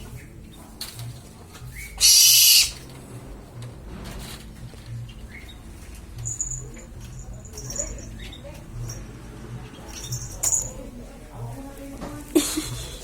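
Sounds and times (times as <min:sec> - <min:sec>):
high-pitched squeaks: 0:02.0 - 0:02.8.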